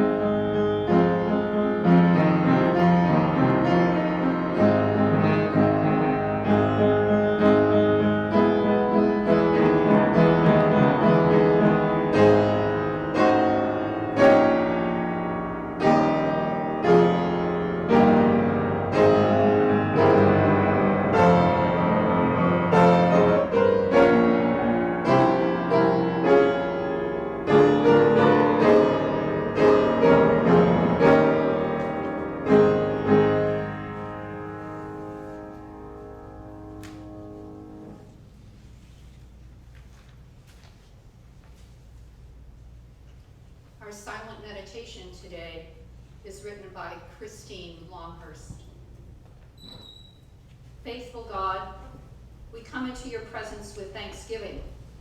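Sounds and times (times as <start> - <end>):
solo piano music: 0.0 - 38.2.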